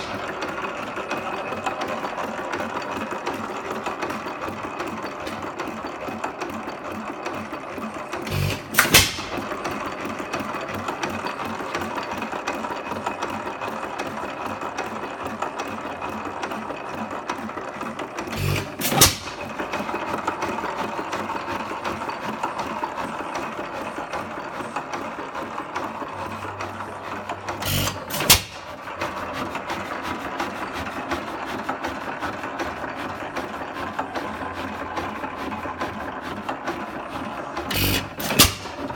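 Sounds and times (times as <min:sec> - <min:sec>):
engine firing with loud bang: 0:00.0 - 0:00.5, 0:08.2 - 0:09.7, 0:18.3 - 0:19.6, 0:27.6 - 0:28.7, 0:37.7 - 0:38.9
engine clattering: 0:00.0 - 0:38.9.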